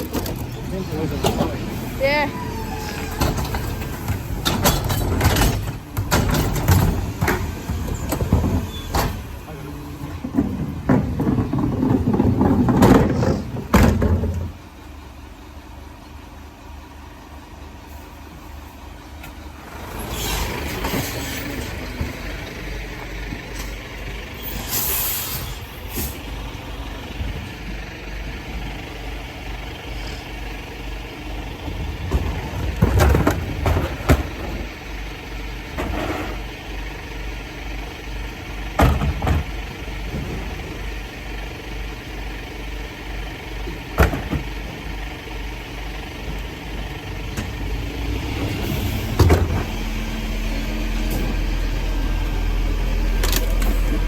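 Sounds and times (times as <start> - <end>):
garbage truck running: 0.0 - 54.0
hiss of air: 24.6 - 26.2.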